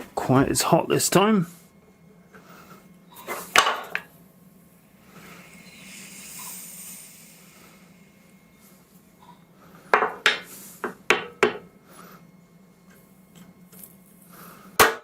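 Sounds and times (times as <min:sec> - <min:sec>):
soft hiss: 0:04.7 - 0:09.2.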